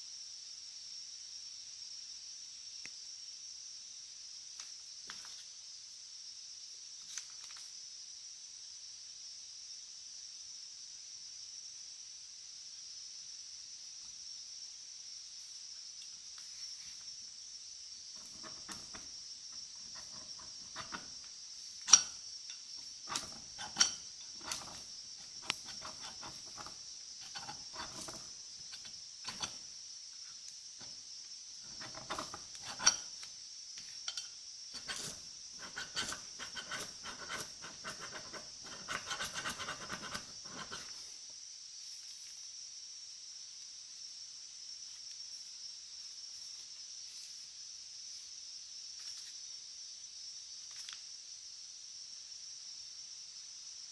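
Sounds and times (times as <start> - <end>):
steady high hiss: 0.0 - 25.7, 26.6 - 35.6, 40.8 - 53.9
metal tools clicking and clinking: 18.2 - 19.1, 19.8 - 29.6, 31.6 - 33.3, 34.0 - 41.0
rubbing and scraping: 18.2 - 22.2, 22.8 - 29.7, 31.6 - 33.2, 34.8 - 41.1.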